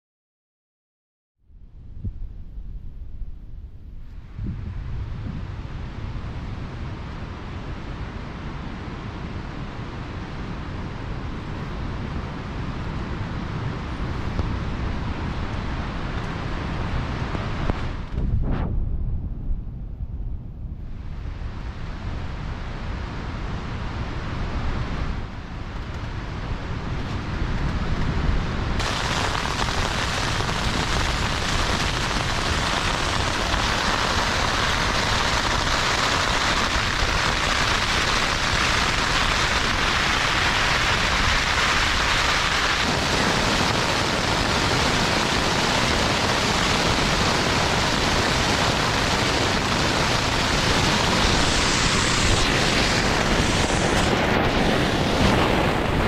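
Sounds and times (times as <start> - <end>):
wind buffeting microphone: 1.6 - 56.0
heavy rain pouring: 28.8 - 56.0.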